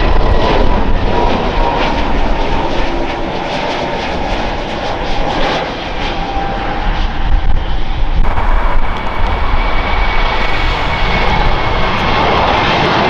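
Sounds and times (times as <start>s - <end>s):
high whine falling in pitch: 8.2s - 12.7s
jet engines running: 8.2s - 13.0s.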